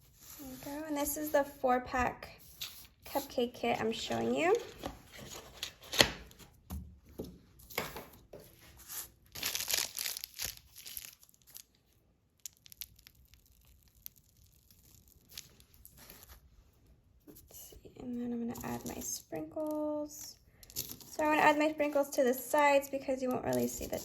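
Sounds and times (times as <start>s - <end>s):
packaging crinkling: 9.3s - 16.4s.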